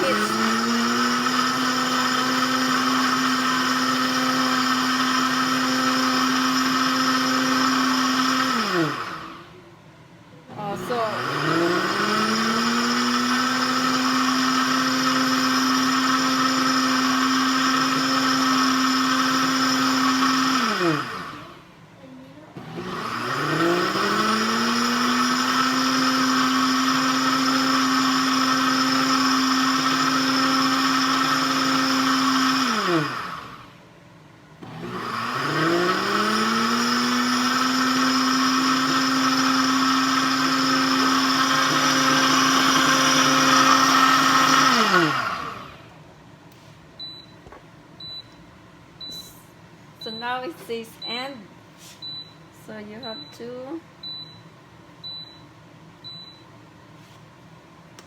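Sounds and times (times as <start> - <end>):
blender motor running: 0.0 - 9.6, 10.5 - 21.8, 22.5 - 33.8, 34.6 - 46.0.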